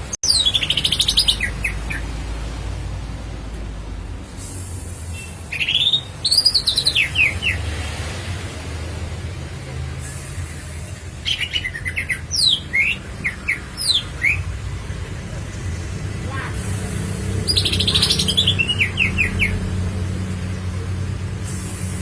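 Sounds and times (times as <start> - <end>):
bird singing whistled notes: 11.3 - 14.4.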